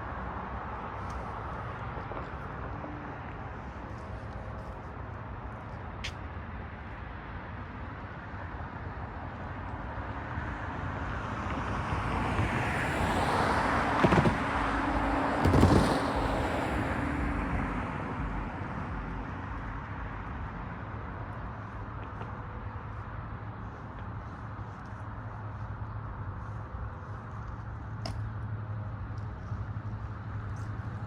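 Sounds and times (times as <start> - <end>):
vehicle tyres passing: 11.4 - 31.0.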